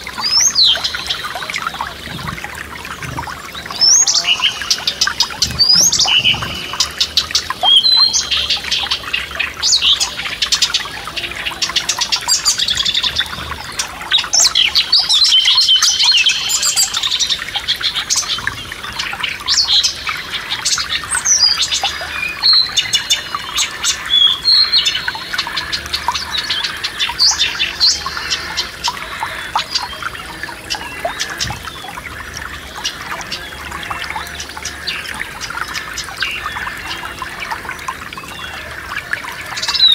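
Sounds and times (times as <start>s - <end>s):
songbirds singing: 0.0s - 39.9s
stream trickling: 0.0s - 39.9s.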